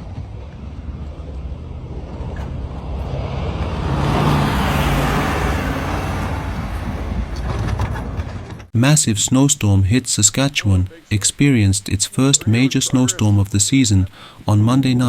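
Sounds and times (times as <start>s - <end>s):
vehicle passing by: 0.0s - 8.4s
wind rumble on microphone: 0.0s - 8.6s.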